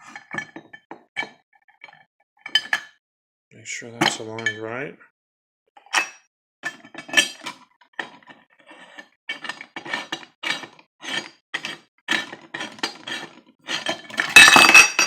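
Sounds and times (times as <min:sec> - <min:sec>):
metal parts clinking and scraping: 0:06.0 - 0:15.0.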